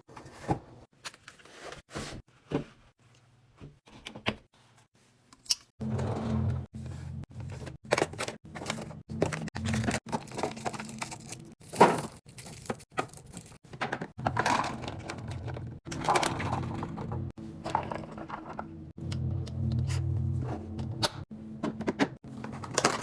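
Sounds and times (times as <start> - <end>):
food containers knocking and clacking: 11.7 - 18.8.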